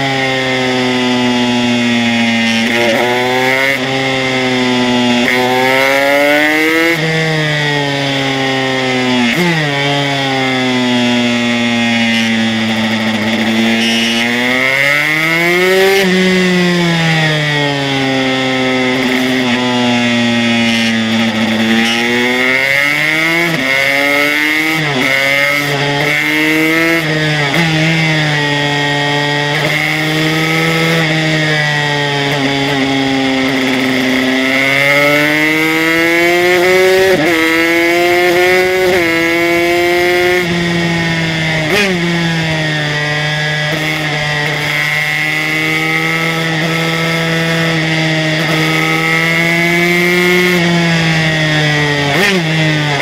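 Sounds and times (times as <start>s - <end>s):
racing motorcycle engine revving: 0.0s - 53.0s.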